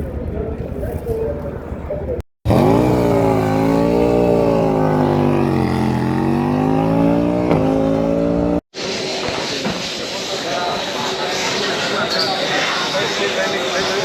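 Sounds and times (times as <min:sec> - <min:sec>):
motorcycle engine revving high: 0:02.5 - 0:08.6.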